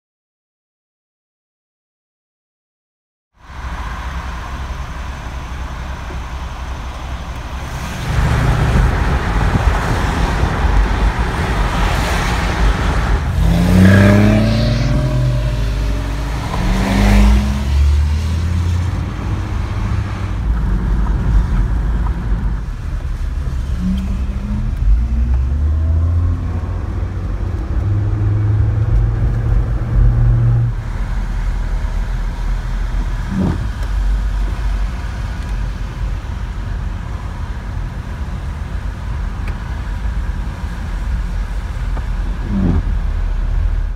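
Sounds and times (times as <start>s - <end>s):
tyre and road noise: 3.4s - 43.9s
sports car engine accelerating: 3.7s - 35.8s, 40.9s - 43.9s.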